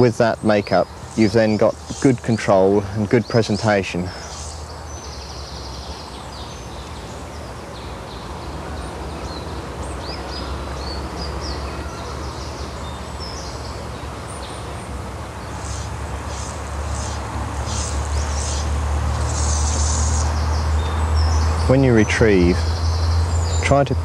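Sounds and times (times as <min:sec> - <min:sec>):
wild birds singing: 0:00.0 - 0:24.0
outdoor hiss: 0:15.2 - 0:20.8.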